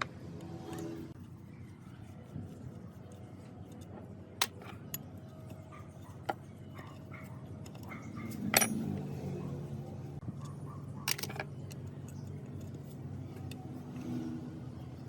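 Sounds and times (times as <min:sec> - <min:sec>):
metallic clinks and knocks: 0:03.6 - 0:09.2, 0:10.3 - 0:13.8.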